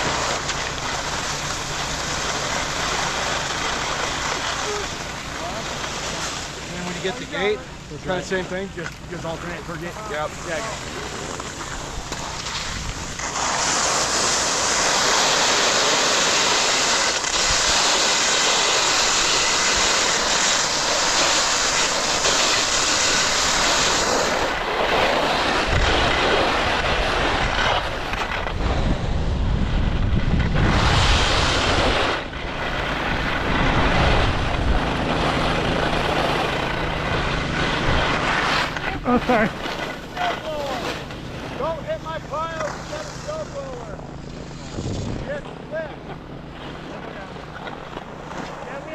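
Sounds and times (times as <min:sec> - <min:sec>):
skis scraping snow: 0:00.0 - 0:48.9
wind buffeting microphone: 0:25.6 - 0:40.2, 0:44.0 - 0:45.5.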